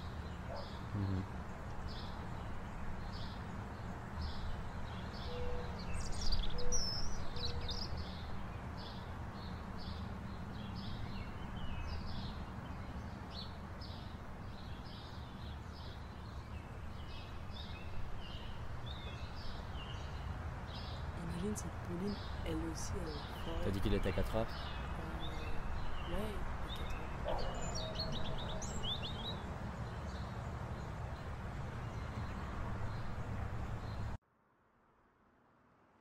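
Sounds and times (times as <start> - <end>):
bird chirping: 0.0 - 34.1
varied bird song: 0.0 - 34.2.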